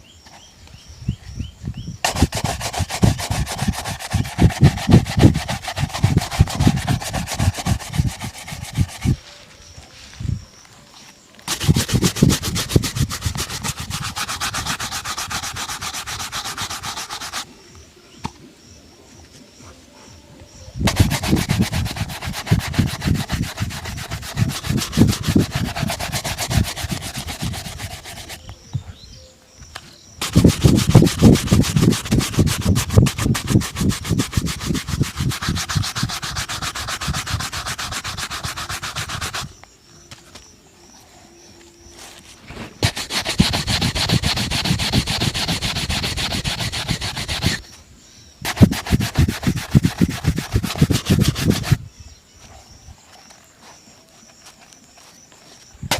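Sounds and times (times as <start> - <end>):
shoe being buffed: 2.0 - 9.2, 11.5 - 17.5, 20.8 - 28.4, 30.2 - 39.6, 42.8 - 47.6, 48.4 - 51.8.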